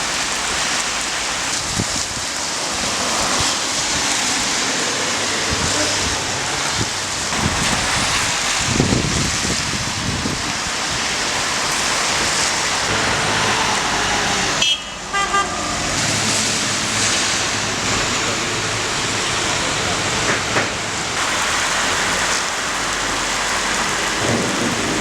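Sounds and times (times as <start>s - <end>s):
heavy rain pouring: 0.0s - 25.0s
traffic: 0.0s - 25.0s
car horn toot: 12.9s - 16.0s.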